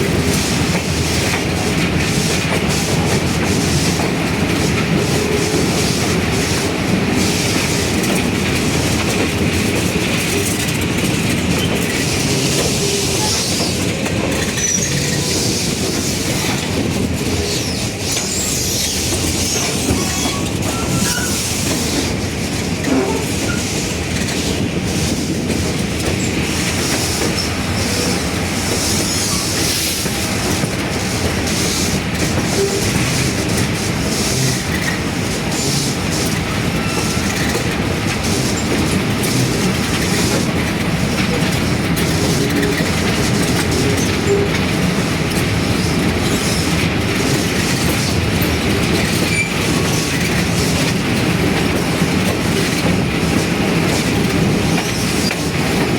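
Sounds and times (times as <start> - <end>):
train wheels clickety-clack on rails: 0.0 - 55.9
high wheel squeals: 14.4 - 16.6, 17.5 - 21.5, 36.7 - 37.6.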